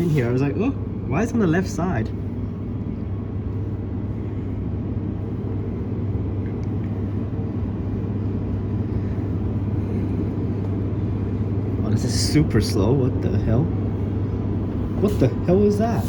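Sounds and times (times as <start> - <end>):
train interior hum and rumble: 0.0 - 16.0.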